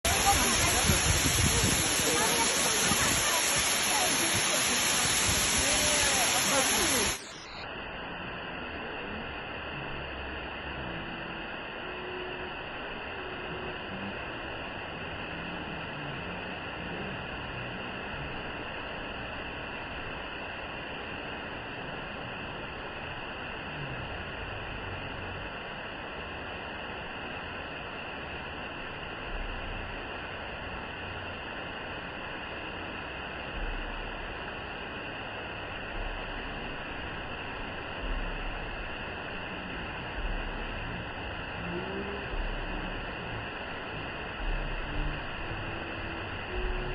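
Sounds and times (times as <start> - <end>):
waterfall rushing: 0.0 - 7.6, 32.0 - 46.9
low thumps on microphone: 35.9 - 37.4, 38.0 - 39.4, 40.0 - 41.2, 42.3 - 43.2, 44.2 - 45.8, 46.5 - 46.9.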